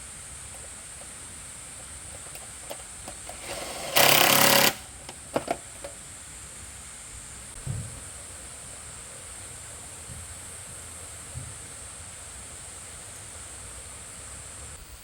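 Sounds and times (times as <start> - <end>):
mechanical tool burst: 3.3 - 4.9.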